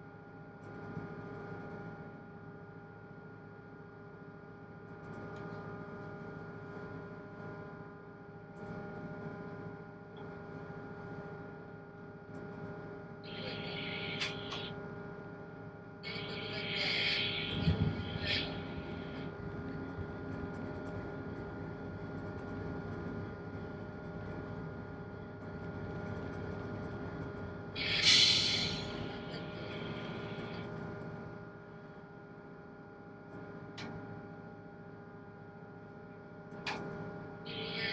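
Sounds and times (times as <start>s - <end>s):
sharp hiss: 27.8s - 29.0s.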